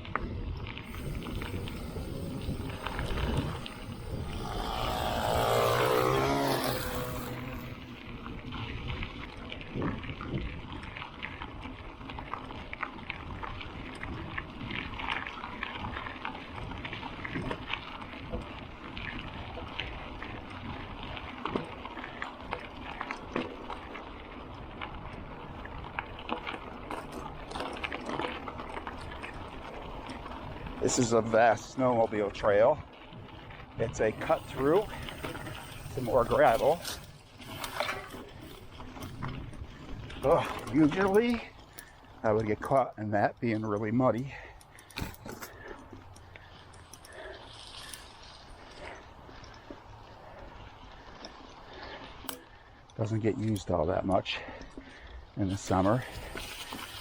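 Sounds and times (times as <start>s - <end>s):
bicycle tyres rolling over gravel: 0.0s - 57.0s
riding noise: 0.6s - 9.7s, 24.8s - 51.5s
engine passing by: 0.9s - 8.1s.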